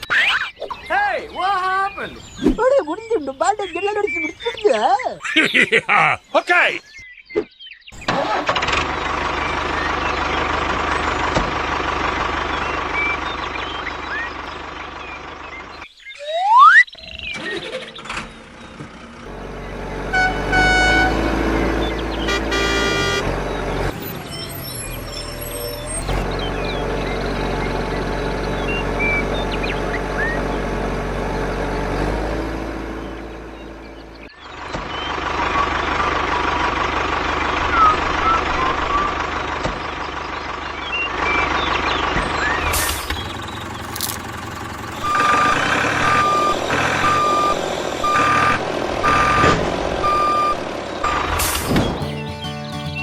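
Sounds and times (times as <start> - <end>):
birds chirping: 0.0 - 8.1, 9.1 - 31.0, 32.8 - 53.0
small vehicle motor running: 17.4 - 51.8.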